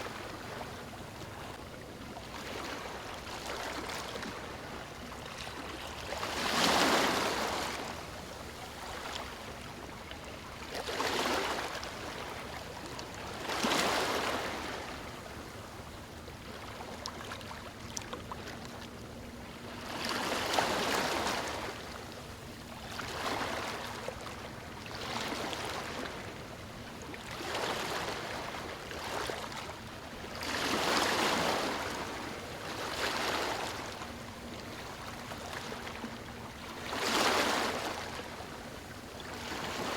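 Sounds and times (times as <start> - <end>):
steady wash of water: 2.3 - 12.6.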